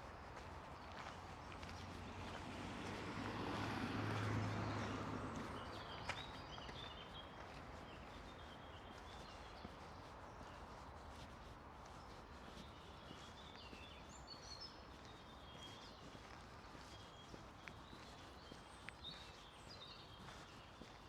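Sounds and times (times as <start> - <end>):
small birds chirping: 4.2 - 21.0.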